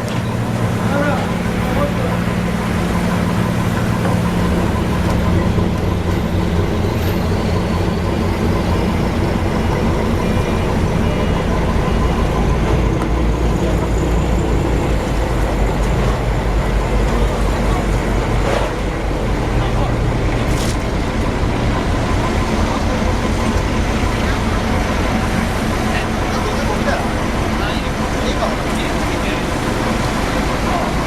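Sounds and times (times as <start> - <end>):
boat engines humming: 0.0 - 31.0
unloading machinery noise: 20.2 - 25.8.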